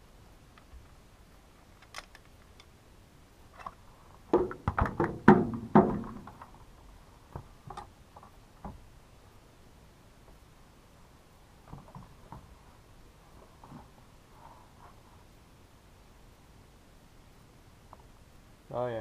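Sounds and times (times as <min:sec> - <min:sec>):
parts knocking and rattling: 0:03.6 - 0:06.6.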